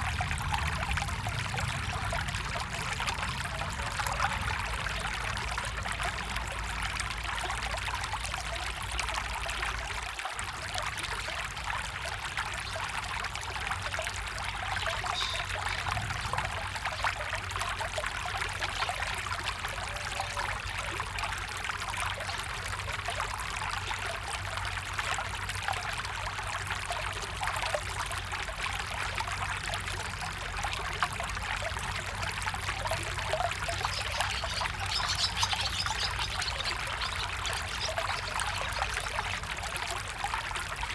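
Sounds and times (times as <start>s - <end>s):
stream trickling over stones: 0.0s - 40.9s.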